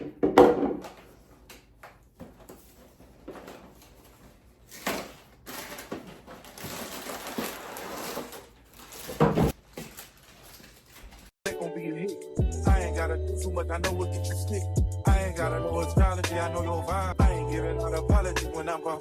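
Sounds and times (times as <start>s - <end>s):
plastic containers being handled: 0.0s - 11.3s
packaging rustling: 2.1s - 11.4s.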